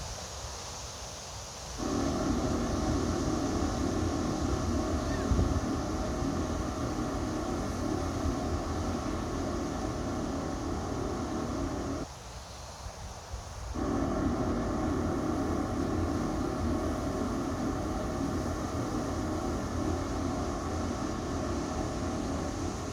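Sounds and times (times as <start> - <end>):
mechanical hum of held tones: 1.8 - 12.1, 13.8 - 22.9.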